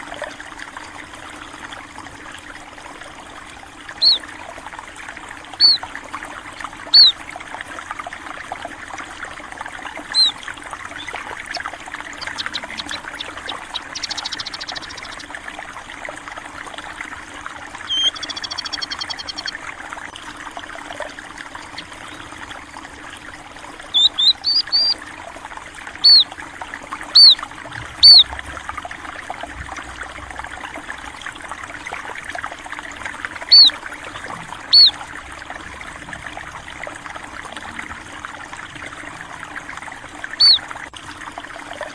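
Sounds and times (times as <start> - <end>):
water trickling: 0.0 - 41.9
small birds chirping: 4.0 - 4.2, 5.6 - 5.9, 6.9 - 7.2, 10.1 - 15.3, 17.8 - 19.6, 21.6 - 22.4, 23.9 - 25.0, 26.0 - 26.3, 27.1 - 27.4, 28.0 - 28.4, 33.5 - 33.8, 34.7 - 35.0, 40.4 - 40.7.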